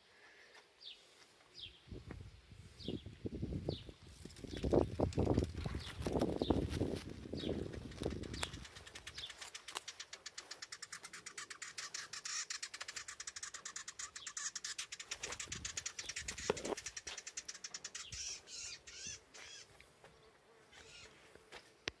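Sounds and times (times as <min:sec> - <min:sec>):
bird alarm call ticks: 0:07.4 - 0:19.7
bird wavering calls: 0:07.4 - 0:19.7, 0:20.7 - 0:21.2.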